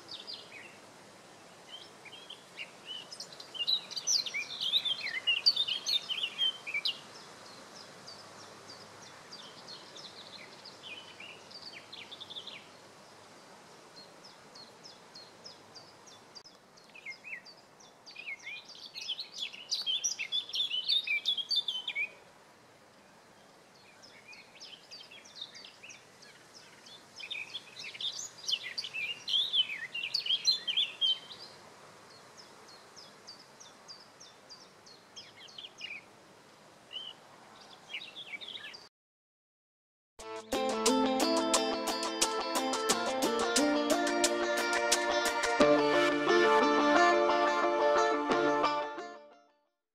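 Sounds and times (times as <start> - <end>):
birds chirping: 1.5 - 13.3, 36.9 - 38.9.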